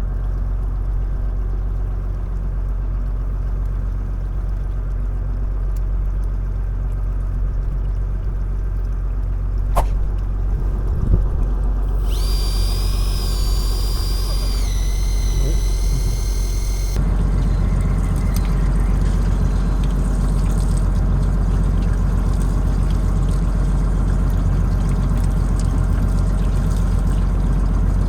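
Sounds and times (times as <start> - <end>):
sharp click: 9.8 - 10.3, 11.9 - 17.0
boat engine droning: 11.8 - 17.0
high steady tones: 11.9 - 17.0.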